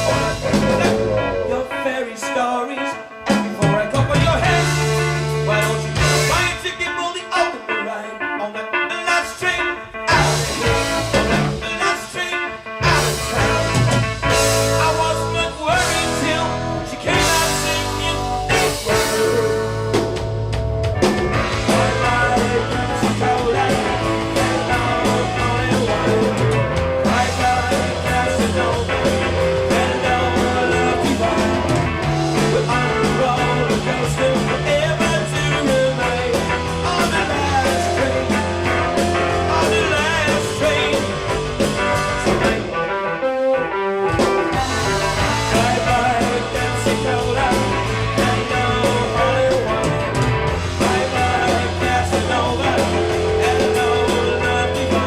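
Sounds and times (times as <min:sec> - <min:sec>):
rock band playing: 0:00.0 - 0:55.0.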